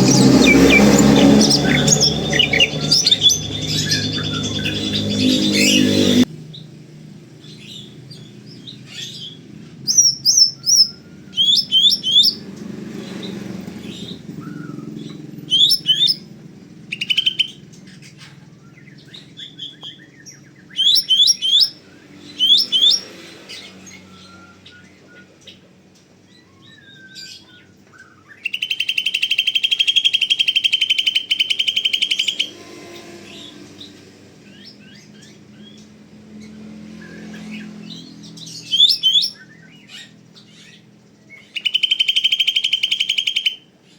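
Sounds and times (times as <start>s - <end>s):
bird chattering trill: 0.0s - 6.3s, 8.6s - 16.3s, 16.9s - 23.1s, 28.3s - 33.5s, 37.9s - 43.8s
bird singing whistled notes: 0.0s - 6.7s, 7.4s - 12.6s, 13.2s - 25.6s, 26.3s - 43.9s.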